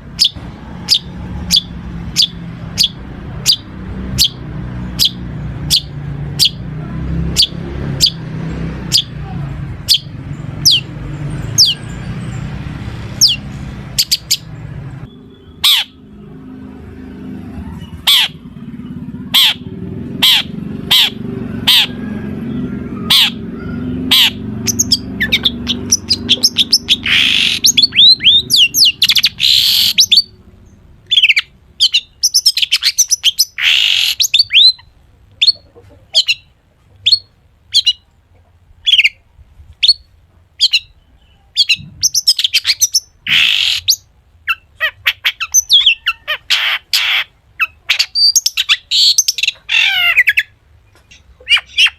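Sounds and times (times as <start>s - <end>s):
shrike singing: 0.0s - 38.1s.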